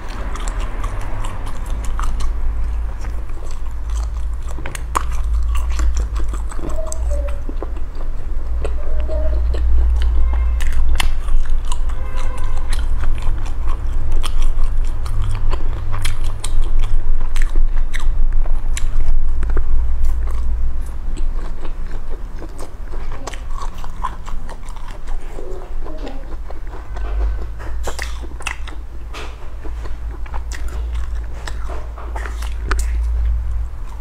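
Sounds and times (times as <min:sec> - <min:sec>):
chewing and crunching food: 0:00.0 - 0:34.0
low hum: 0:00.0 - 0:34.0.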